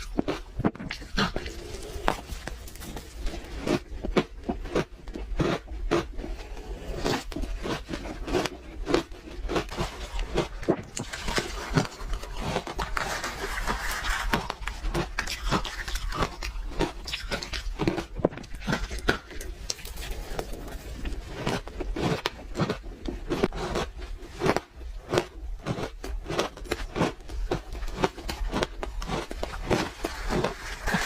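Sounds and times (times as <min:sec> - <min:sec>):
ice being chewed: 0:00.0 - 0:31.0.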